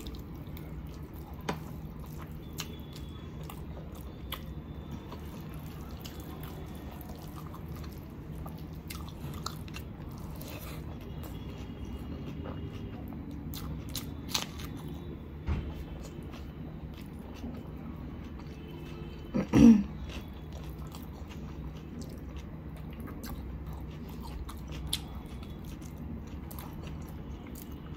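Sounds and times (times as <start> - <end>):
person chewing: 0.0 - 27.9.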